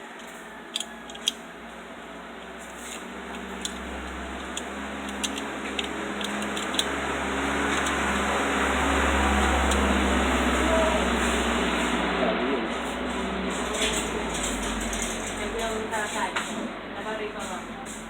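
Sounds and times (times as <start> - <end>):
mechanical hum and hiss: 0.0 - 18.0
pliers clicking: 0.2 - 1.4, 2.7 - 7.0, 9.6 - 10.0.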